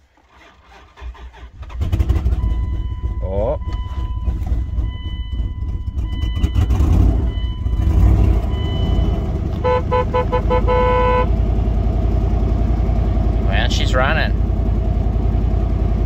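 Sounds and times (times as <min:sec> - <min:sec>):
car engine revving: 0:00.4 - 0:16.0
short beeps: 0:02.3 - 0:11.3.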